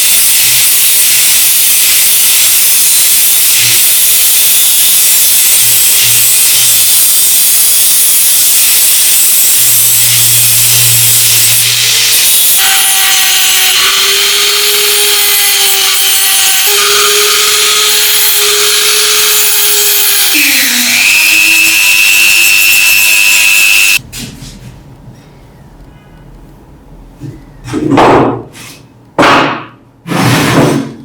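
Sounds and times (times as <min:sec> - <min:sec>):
motor whine: 0:20.3 - 0:24.0.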